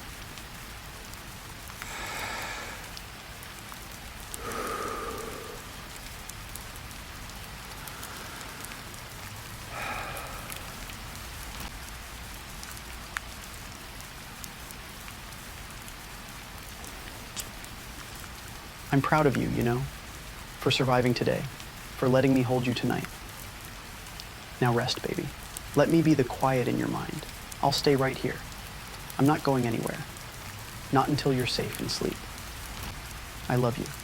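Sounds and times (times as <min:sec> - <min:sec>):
steady rain falling: 0:00.0 - 0:34.0
soft breaths: 0:01.7 - 0:06.6, 0:07.6 - 0:11.7.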